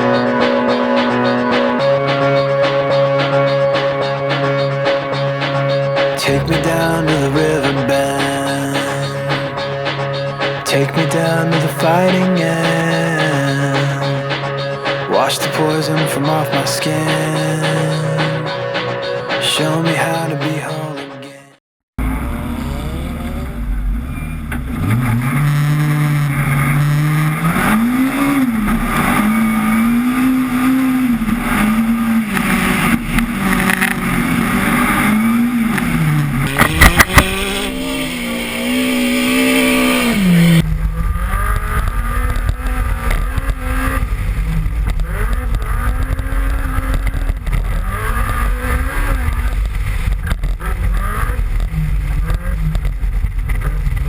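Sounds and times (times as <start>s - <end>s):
car engine revving: 22.0s - 54.0s.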